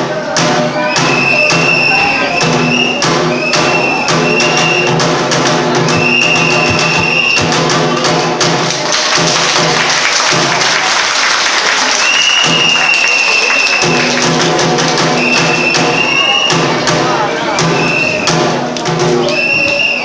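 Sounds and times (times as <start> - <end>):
drum strokes in regular beat: 0.0 - 11.0, 12.3 - 12.9, 13.7 - 20.0
high flute long notes: 0.7 - 5.0, 15.2 - 18.4.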